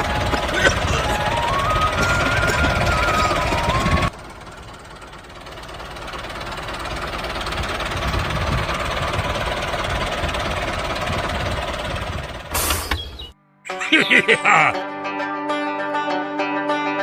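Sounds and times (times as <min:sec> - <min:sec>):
model tractor engine running: 0:00.0 - 0:13.2
music: 0:13.4 - 0:17.0.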